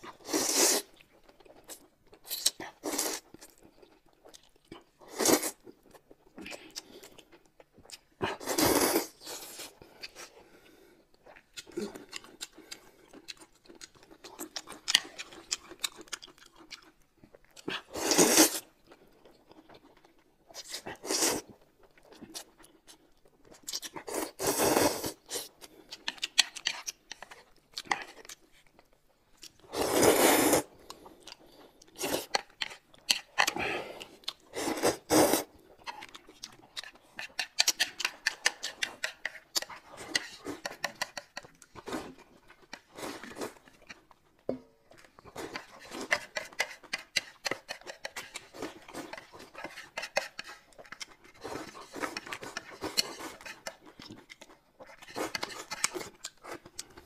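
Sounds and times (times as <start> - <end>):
chewing and crunching: 0.0 - 29.8, 30.6 - 57.0.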